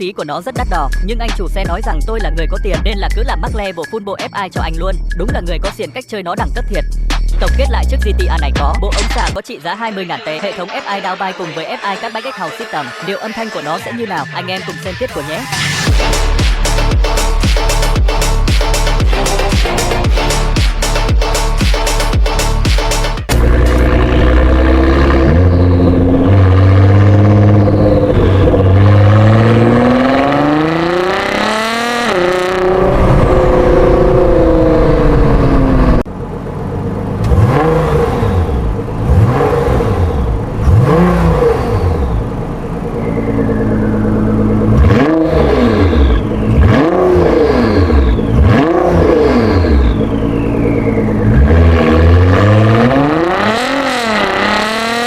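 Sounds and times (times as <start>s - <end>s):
car engine revving: 14.9s - 55.0s.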